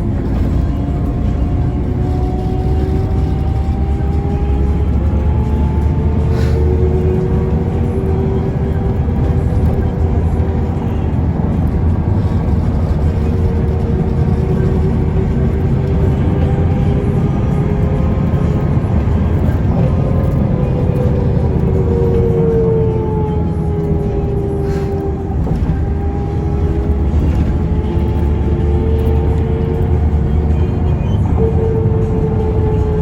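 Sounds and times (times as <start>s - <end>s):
bus engine and road rumble: 0.0s - 33.0s
rising whine: 0.0s - 33.0s.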